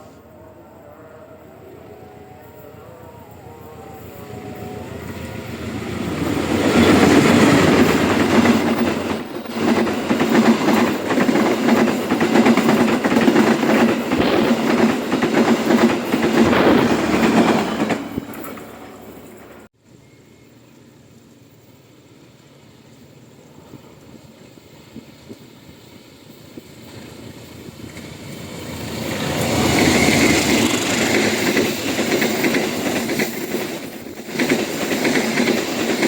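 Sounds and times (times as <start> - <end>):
train wheels clacking on rails: 5.1 - 19.7, 24.0 - 36.0.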